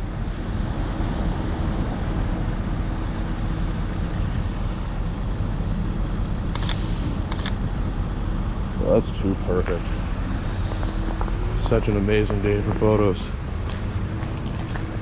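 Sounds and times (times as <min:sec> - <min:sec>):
street traffic rumble: 0:00.0 - 0:15.0
short sharp clicks: 0:06.6 - 0:07.6.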